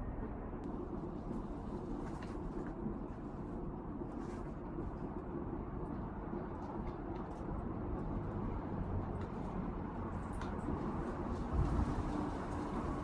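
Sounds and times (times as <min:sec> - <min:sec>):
wind buffeting microphone: 0:11.2 - 0:13.0.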